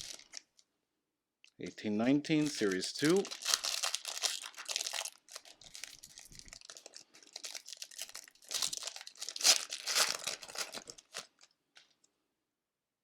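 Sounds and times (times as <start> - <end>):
wrapper tearing and crinkling: 0.0 - 0.6, 2.4 - 11.6.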